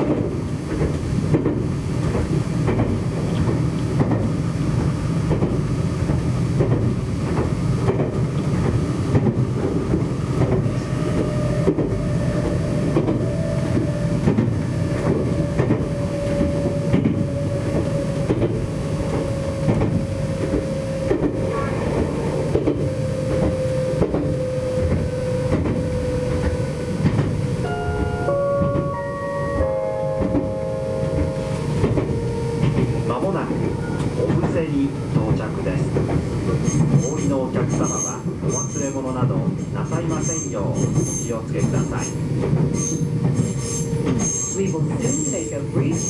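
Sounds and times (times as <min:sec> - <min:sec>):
wheels clacking over rail joints: 0:00.0 - 0:27.5
train interior rumble: 0:00.0 - 0:46.0.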